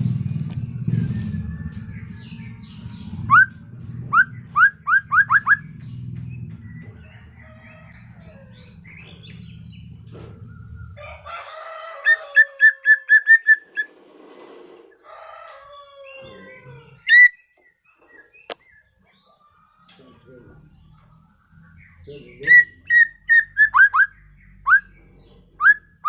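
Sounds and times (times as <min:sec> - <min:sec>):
low hum: 0:00.0 - 0:11.3
songbird whistling phrases: 0:03.2 - 0:05.8, 0:12.3 - 0:13.9, 0:16.0 - 0:20.0, 0:22.3 - 0:25.0, 0:25.6 - 0:26.0.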